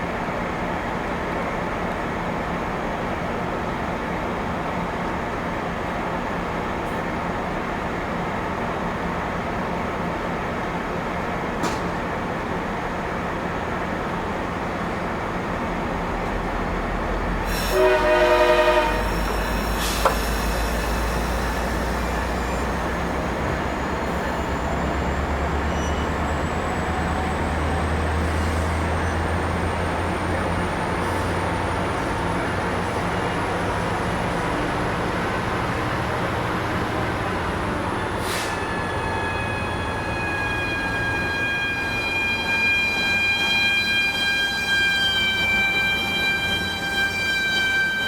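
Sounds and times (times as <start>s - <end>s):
train diesel rumble: 0.0s - 48.0s
train horn blast: 17.5s - 21.1s, 38.5s - 48.0s.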